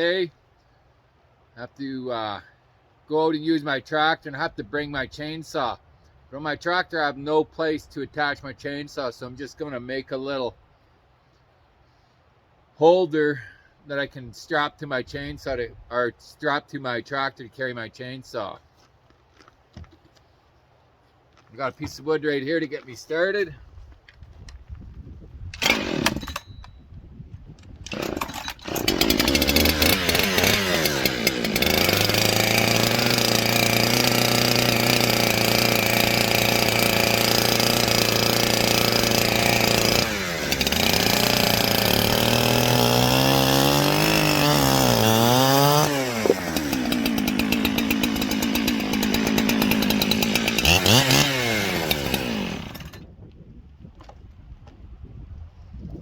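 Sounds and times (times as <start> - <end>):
chainsaw cutting wood: 25.6 - 26.6, 27.8 - 53.1.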